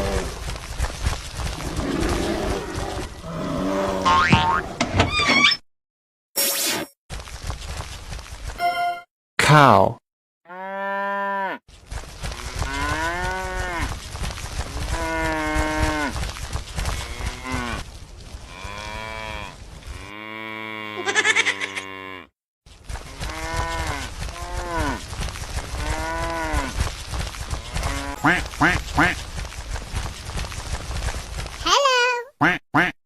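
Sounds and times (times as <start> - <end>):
cow mooing: 10.5 - 11.6.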